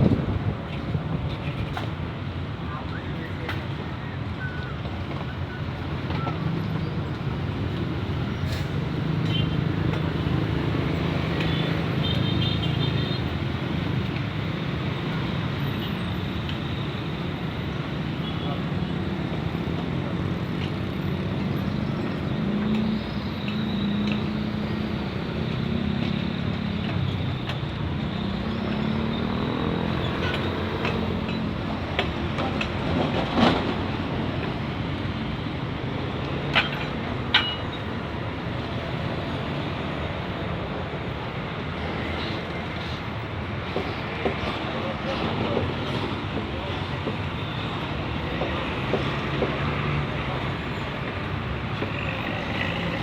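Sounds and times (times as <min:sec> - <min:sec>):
road traffic: 0:00.0 - 0:53.0.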